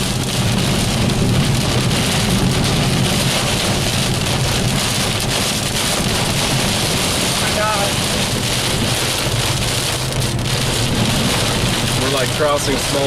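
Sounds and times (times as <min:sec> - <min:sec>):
car rumbling on wet road: 0:00.0 - 0:13.0
heavy rain on car windshield: 0:00.0 - 0:13.0.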